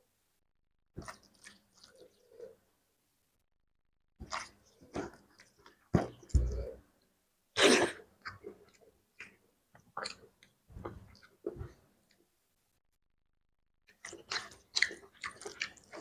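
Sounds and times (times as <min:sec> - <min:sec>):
person chewing food: 0:01.0 - 0:02.6, 0:04.2 - 0:06.8, 0:08.2 - 0:11.9, 0:13.9 - 0:16.0.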